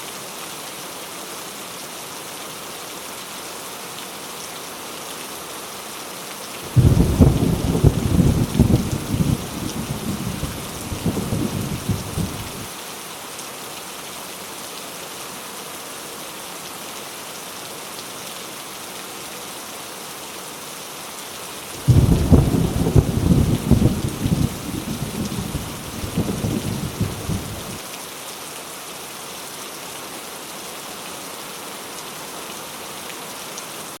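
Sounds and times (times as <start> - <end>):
heavy rain: 0.0 - 34.0
thunder rumbling: 6.7 - 12.7, 21.8 - 27.8
thunderclap: 6.7 - 12.7, 21.8 - 27.8.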